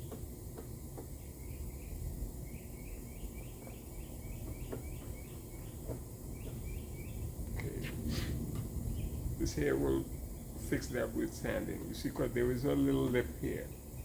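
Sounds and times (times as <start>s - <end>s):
bird chirping: 0.0s - 14.0s
low rumble: 5.2s - 13.7s.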